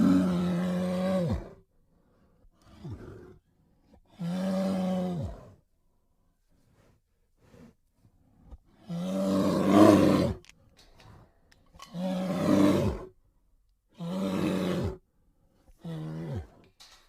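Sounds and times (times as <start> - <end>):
bear roaring: 0.0 - 1.6, 2.6 - 3.4, 4.1 - 5.6, 8.8 - 10.4, 11.8 - 13.2, 14.0 - 15.0, 15.8 - 16.7.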